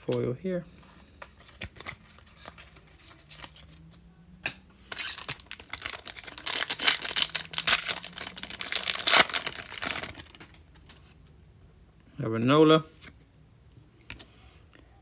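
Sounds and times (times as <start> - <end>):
foil wrapper tearing and crinkling: 4.9 - 10.6.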